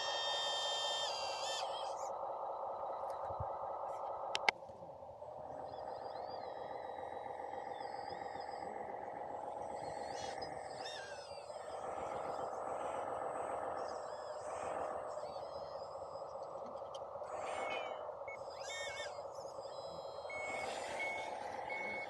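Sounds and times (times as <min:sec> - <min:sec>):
small electric motors whining: 0:00.0 - 0:02.2, 0:05.7 - 0:22.0.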